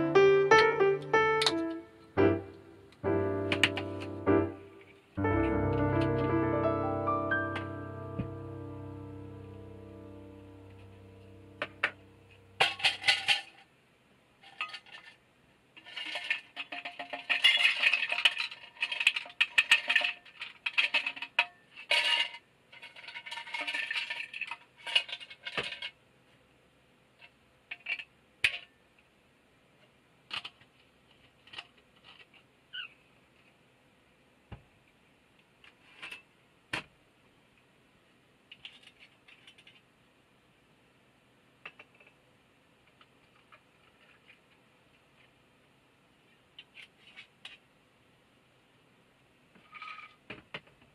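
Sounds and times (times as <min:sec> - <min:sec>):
small hard objects clinking: 0:15.8 - 0:25.9.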